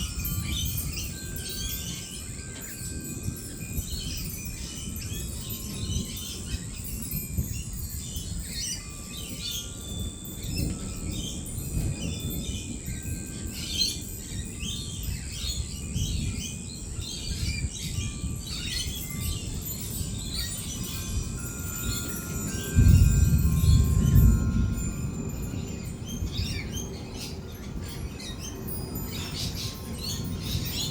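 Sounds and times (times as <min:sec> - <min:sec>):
lorikeets chattering and screeching: 0:07.9 - 0:30.9.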